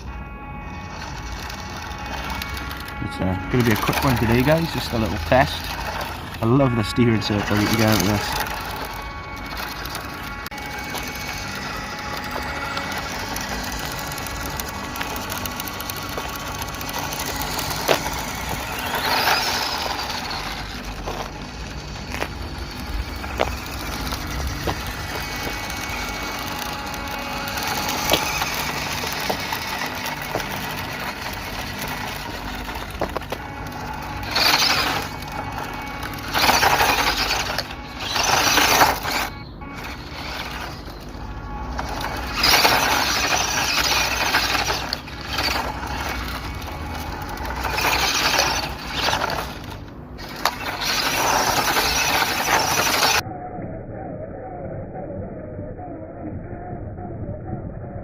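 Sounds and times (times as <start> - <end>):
tyres scrabbling on loose dirt: 0.0 - 53.2
electric motor and gearbox whining: 0.0 - 53.4.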